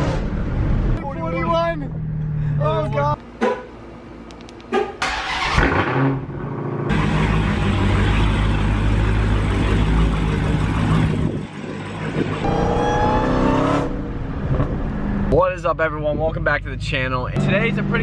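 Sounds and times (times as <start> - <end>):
car engine revving: 5.0 - 15.3, 16.6 - 18.0.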